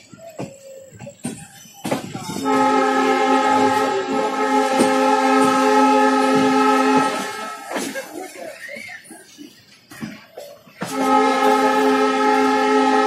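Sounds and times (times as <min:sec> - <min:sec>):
rail rumble: 0:00.0 - 0:13.0
train horn blast: 0:02.4 - 0:07.8, 0:10.8 - 0:13.0.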